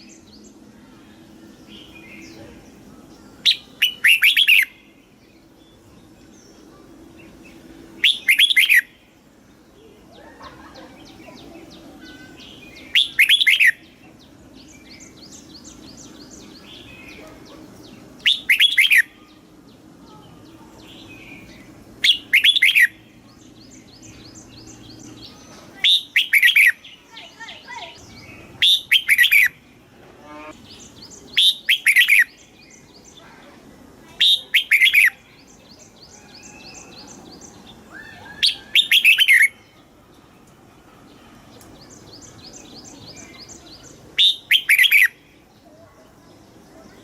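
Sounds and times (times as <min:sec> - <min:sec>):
faint rapid bird chirping: 0:00.0 - 0:29.6
bulbul singing warbling phrases: 0:00.0 - 0:40.2, 0:41.1 - 0:47.0.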